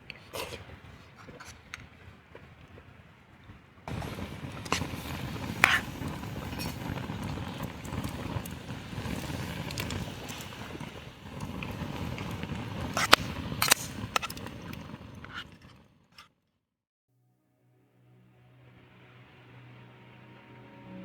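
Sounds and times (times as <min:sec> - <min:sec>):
steady outdoor rumble: 0:00.6 - 0:15.4.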